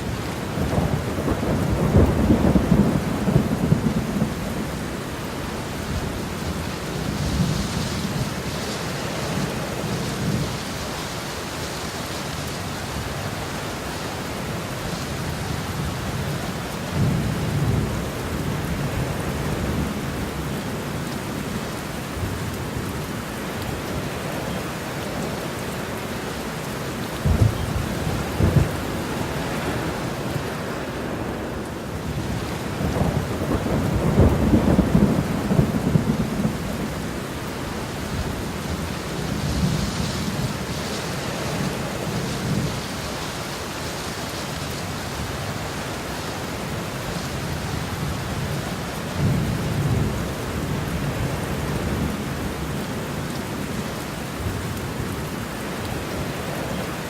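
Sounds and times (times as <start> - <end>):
thunder rumbling: 0.0 - 10.9, 27.1 - 43.1
steady rain falling: 0.0 - 57.0.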